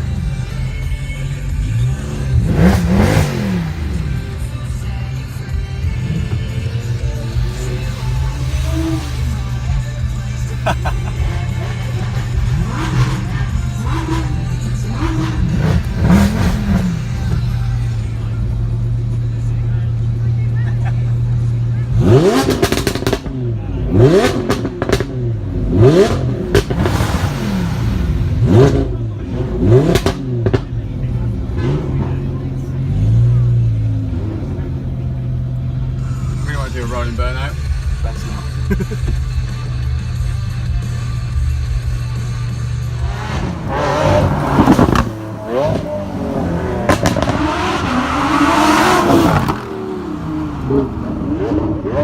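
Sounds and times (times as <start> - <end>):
sports car engine revving: 0.0 - 52.0
exhaust pops: 46.7 - 47.9.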